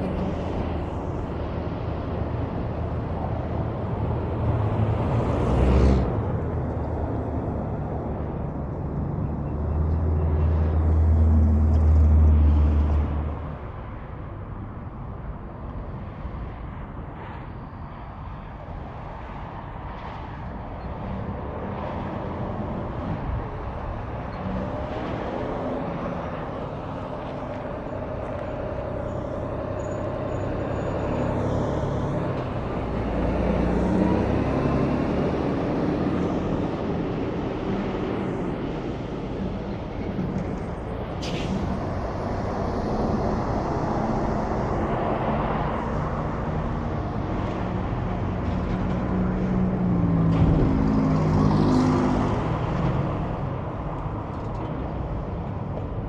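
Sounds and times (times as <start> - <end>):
road noise: 0.0 - 56.0
vehicle passing: 4.2 - 13.3
heavy truck passing: 20.3 - 56.0.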